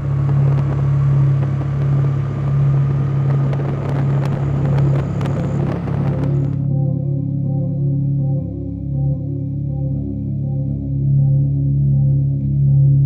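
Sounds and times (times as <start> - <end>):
rushing noise: 0.0 - 6.7
vehicle engine droning: 0.0 - 13.0.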